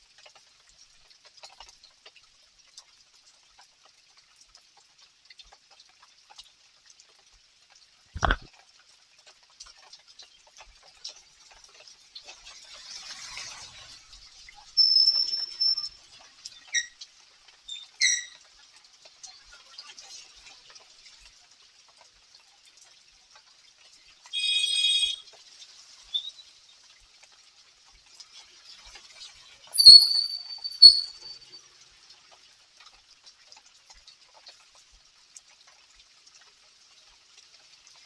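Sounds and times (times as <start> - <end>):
rain pattering and dripping: 0.0 - 38.0
held whistle: 14.8 - 16.0, 24.4 - 25.2, 29.8 - 31.6
short high-pitched calls: 14.8 - 16.0, 24.4 - 25.2, 29.8 - 31.6.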